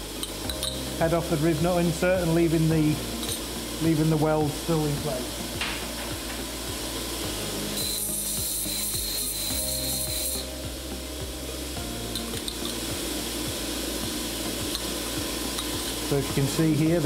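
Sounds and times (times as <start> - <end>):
belt grinder motor hum: 6.3 - 10.6
metal grinding on belt: 6.3 - 10.6.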